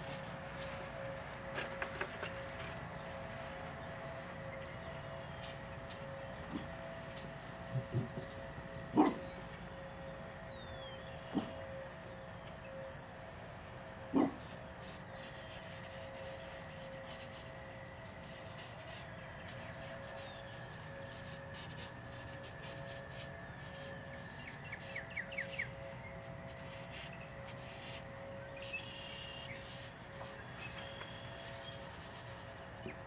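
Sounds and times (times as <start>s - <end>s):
wild birds chirping: 0.6s - 15.5s, 23.1s - 27.5s, 28.1s - 31.9s
bird trill: 8.3s - 14.3s, 18.3s - 31.9s
charcoal scratching on paper: 14.4s - 25.0s, 26.5s - 28.1s, 29.2s - 32.6s.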